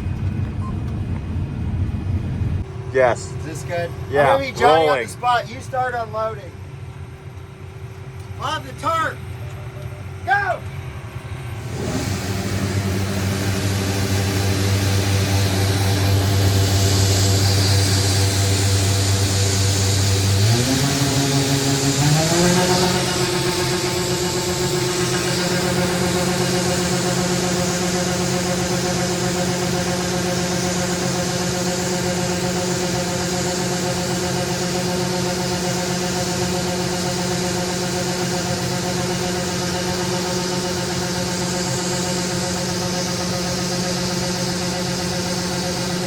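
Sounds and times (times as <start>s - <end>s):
combine harvester droning: 0.0s - 46.0s
diesel engine running under load: 0.0s - 46.0s
rushing hiss of grain unloading: 11.7s - 27.3s.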